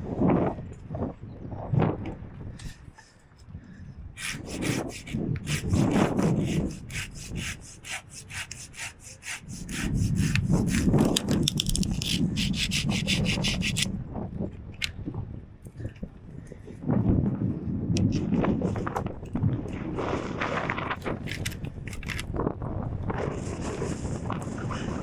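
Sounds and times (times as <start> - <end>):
hand saw cutting branch: 4.2 - 13.9, 21.0 - 22.3.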